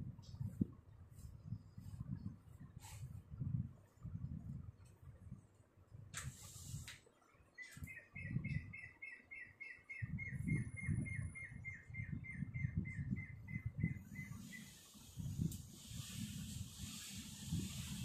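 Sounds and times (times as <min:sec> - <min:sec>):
bird chirping on one pitch: 0:07.5 - 0:14.8.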